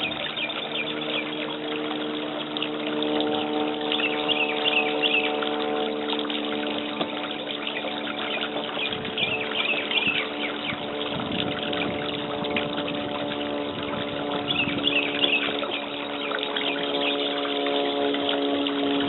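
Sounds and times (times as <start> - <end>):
birds calling squeaky notes: 0.0 - 2.2, 7.2 - 10.9, 14.4 - 17.4
low hum: 0.0 - 19.0.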